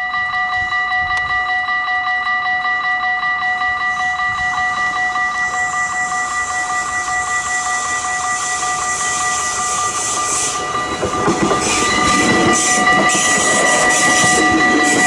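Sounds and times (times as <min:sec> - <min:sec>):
crossing warning bell: 0:00.0 - 0:15.0
train wheels clattering: 0:04.5 - 0:15.0.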